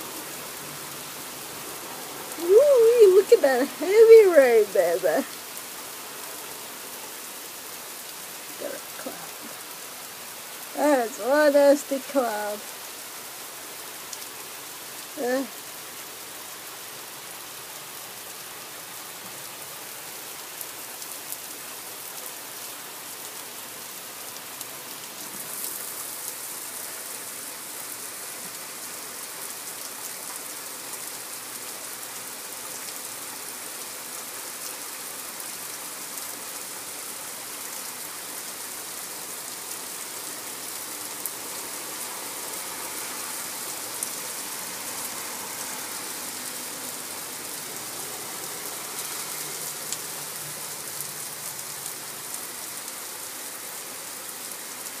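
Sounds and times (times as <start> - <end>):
heavy rain on pavement: 0.0 - 55.0
sharp ticks of raindrops: 0.1 - 55.0.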